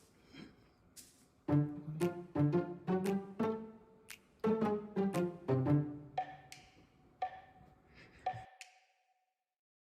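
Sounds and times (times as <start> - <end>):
percussive background music: 1.5 - 7.6.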